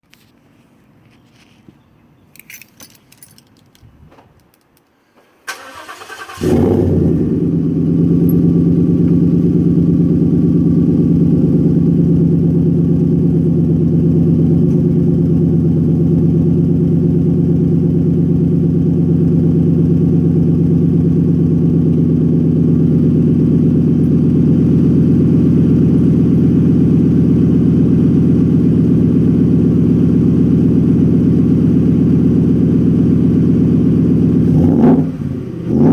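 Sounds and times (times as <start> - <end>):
engine cranking and starting: 5.4 - 7.0
engine deep idle: 5.6 - 35.8.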